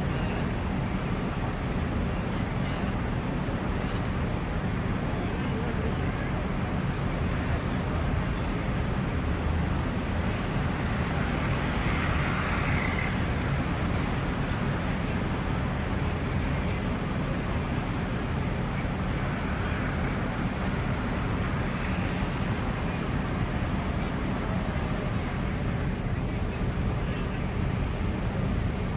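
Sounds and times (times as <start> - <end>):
low city rumble: 0.0 - 28.9
murmur of voices: 0.0 - 28.9.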